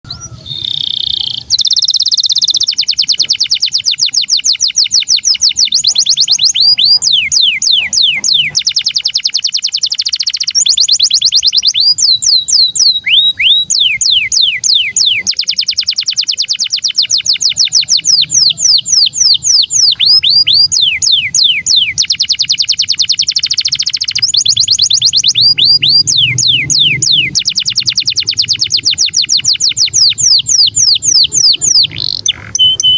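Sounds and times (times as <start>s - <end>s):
canary singing trills: 0.0s - 32.9s.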